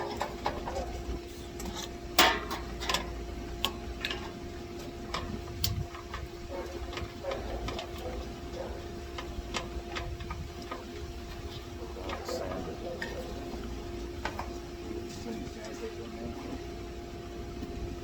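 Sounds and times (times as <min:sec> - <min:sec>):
steady hum: 0:00.0 - 0:18.0
hand tools clinking against metal: 0:06.0 - 0:11.0, 0:11.6 - 0:14.6.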